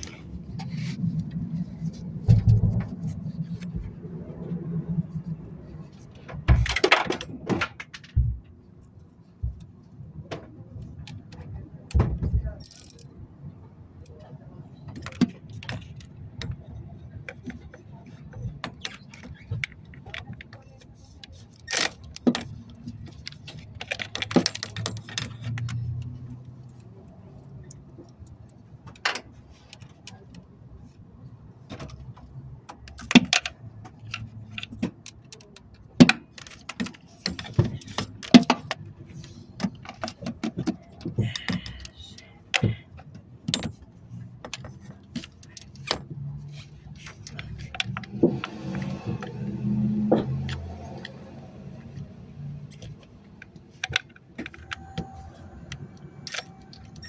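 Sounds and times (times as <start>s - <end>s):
metallic clinks and knocks: 12.5s - 13.2s.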